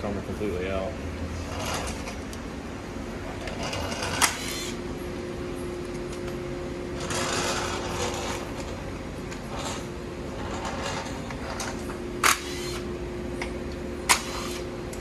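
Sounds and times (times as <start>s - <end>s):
parts being handled: 5.5s - 15.0s.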